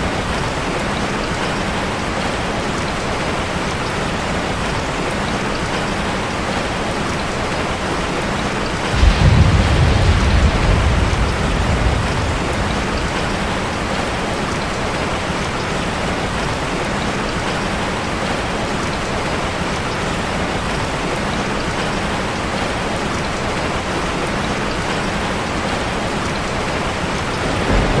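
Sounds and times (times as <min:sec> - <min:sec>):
rain on a metal roof: 0:00.0 - 0:28.0
low rumble: 0:08.9 - 0:14.7.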